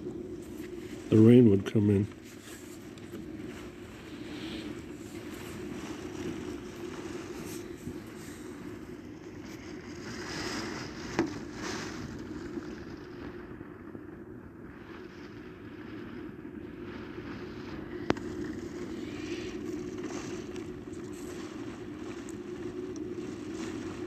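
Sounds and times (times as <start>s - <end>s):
steady low rumble: 0.0s - 24.0s
storm wind and rain: 0.0s - 24.0s.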